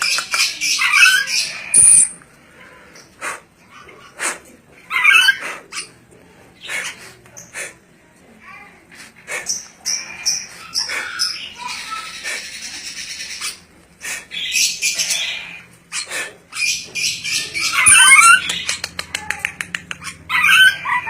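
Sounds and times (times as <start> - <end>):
lorikeet chirping and squawking: 0.0 - 2.2, 4.9 - 6.0, 9.4 - 21.0.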